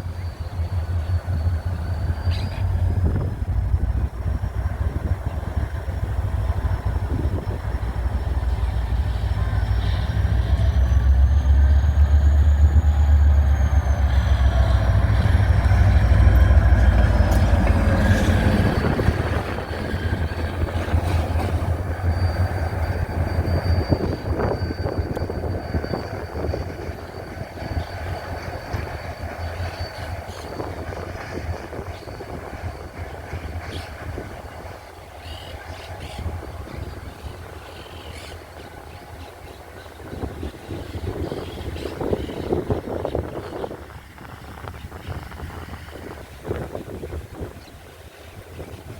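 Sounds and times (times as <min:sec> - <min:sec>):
locomotive engine rumble: 0:00.0 - 0:48.9
faint high squeal: 0:04.2 - 0:43.7.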